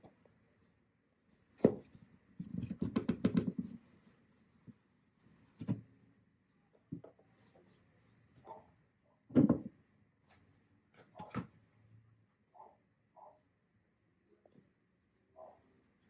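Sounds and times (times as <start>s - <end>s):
objects knocked and rubbed: 1.6s - 3.8s.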